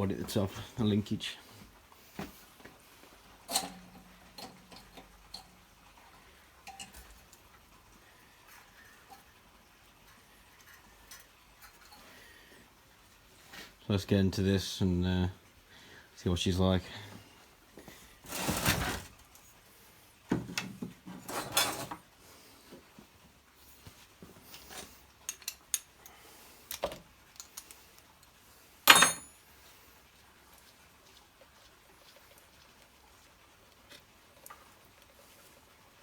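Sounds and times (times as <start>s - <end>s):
metal parts clinking and rattling: 28.9s - 29.4s.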